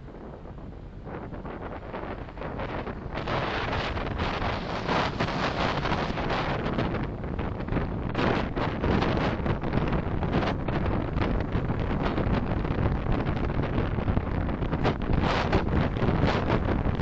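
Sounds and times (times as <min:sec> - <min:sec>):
road noise: 0:00.0 - 0:08.8
wind buffeting microphone: 0:00.0 - 0:17.0.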